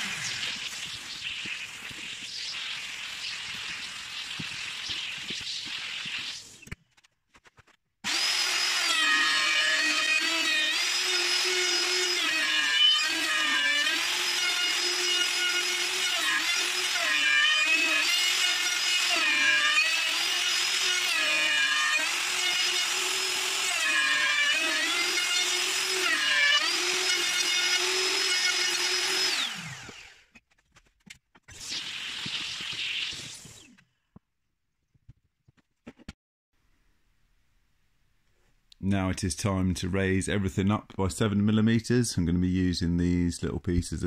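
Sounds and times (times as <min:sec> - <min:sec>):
electric router cutting wood: 0:00.0 - 0:06.3, 0:08.1 - 0:30.2.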